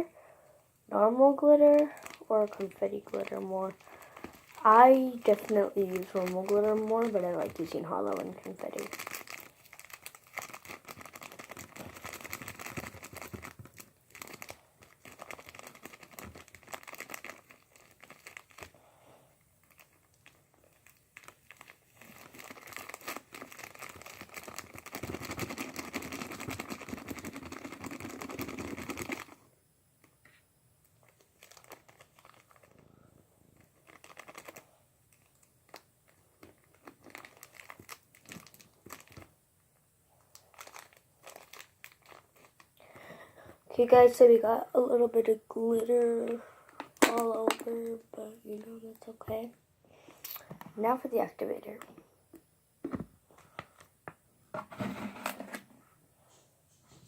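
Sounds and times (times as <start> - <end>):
plastic bottle crinkling and clicking: 1.7 - 18.7, 19.6 - 29.4, 33.6 - 39.3, 46.2 - 47.7.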